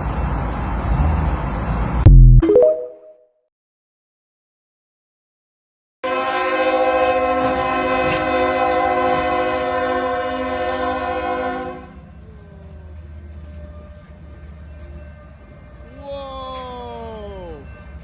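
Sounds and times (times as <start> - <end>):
low rumble of train: 0.0 - 2.0, 6.0 - 18.0
locomotive air horn: 6.0 - 12.0.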